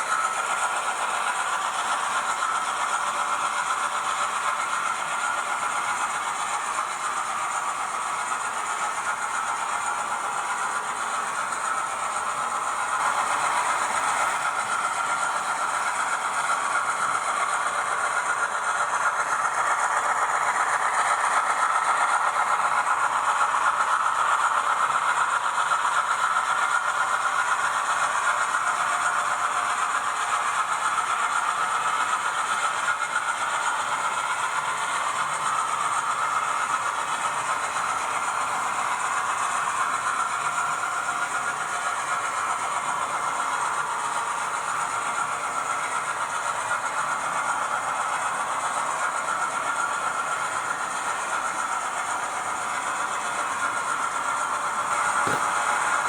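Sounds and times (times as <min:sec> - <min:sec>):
model diesel engine sound: 0:00.0 - 0:56.0
wheels rattling on track: 0:09.4 - 0:56.0.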